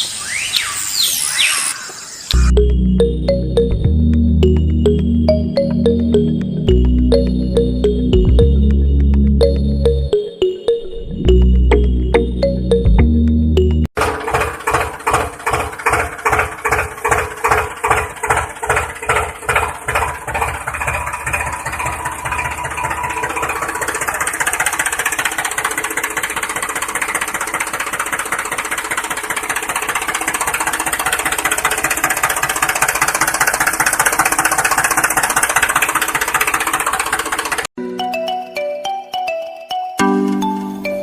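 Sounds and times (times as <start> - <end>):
toy tractor engine chugging: 14.0 - 37.7.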